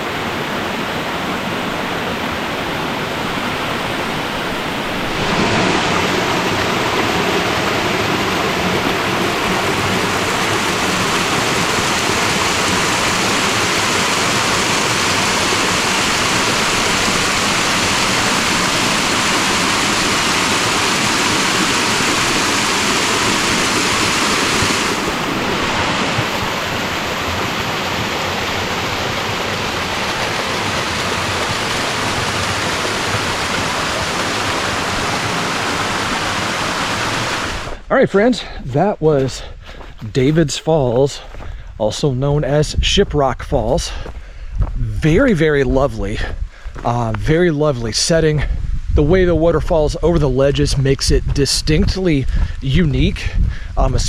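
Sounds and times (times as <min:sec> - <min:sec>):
water rushing over rock ledges: 0:00.0 - 0:39.4.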